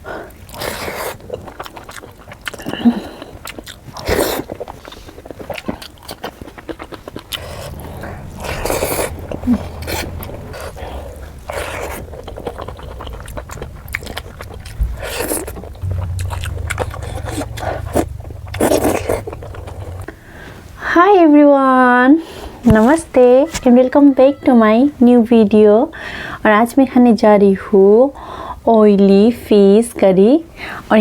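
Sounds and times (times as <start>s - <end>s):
scraping: 7.1s - 21.0s.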